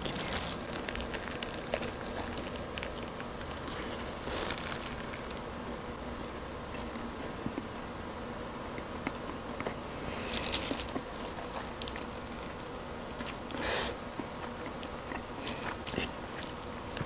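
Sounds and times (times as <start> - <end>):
chewing crispy fried chicken: 0.0 - 5.4, 10.2 - 12.1.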